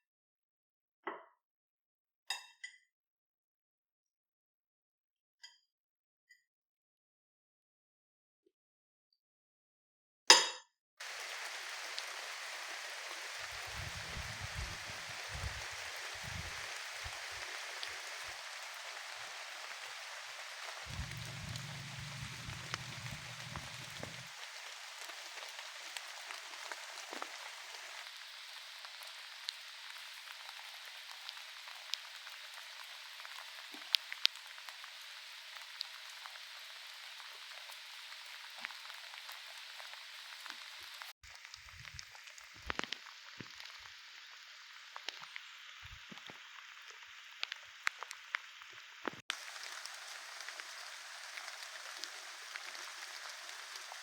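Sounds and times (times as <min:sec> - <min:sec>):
raindrop ticks: 0:11.0 - 0:35.0, 0:37.7 - 0:43.9
steady rain falling: 0:11.0 - 0:54.0.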